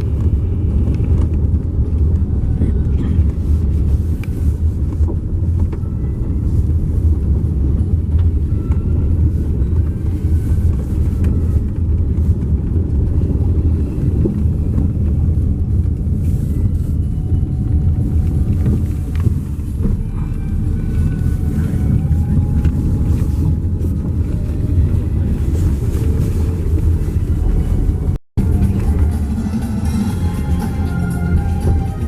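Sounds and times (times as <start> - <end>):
vehicle engine and road rumble: 0.0 - 32.0.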